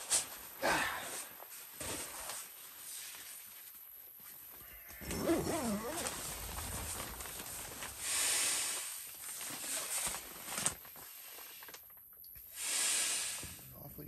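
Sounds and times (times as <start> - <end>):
rustling: 0.0 - 12.0
breathy hiss: 7.9 - 9.9, 12.4 - 14.0.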